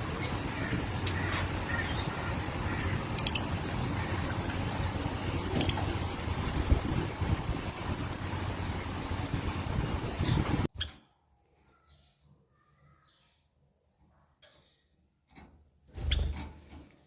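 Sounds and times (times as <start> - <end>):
lovebirds chirping: 0.0 - 6.4
steady low hum: 0.0 - 10.7.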